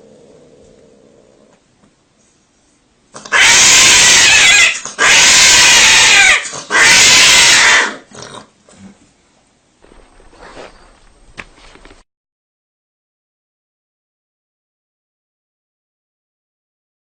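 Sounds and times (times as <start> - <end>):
animal squealing loudly: 3.2 - 8.1.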